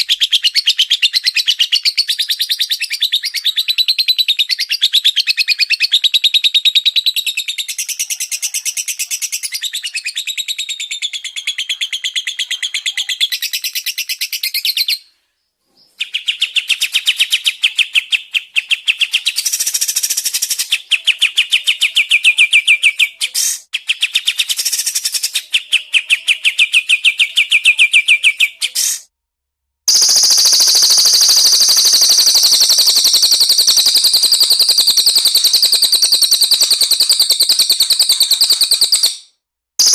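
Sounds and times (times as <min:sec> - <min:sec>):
higher continuous bird trill: 0:00.0 - 0:28.8, 0:29.9 - 0:39.9.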